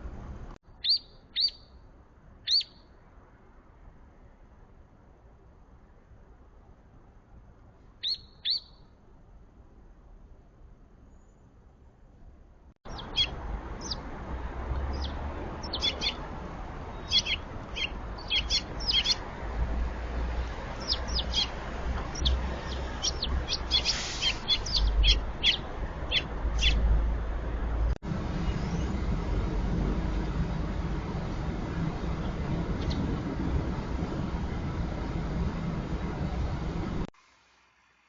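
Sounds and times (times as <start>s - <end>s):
small birds chirping: 0.7s - 1.8s, 2.4s - 3.0s, 8.0s - 9.0s, 12.9s - 19.6s, 20.2s - 27.0s, 28.4s - 29.0s, 31.8s - 33.2s
low rumble: 12.9s - 37.1s.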